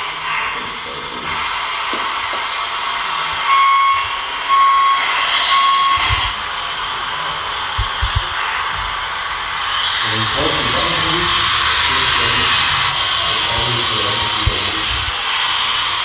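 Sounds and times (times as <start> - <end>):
electronic beeps: 3.4 - 6.4.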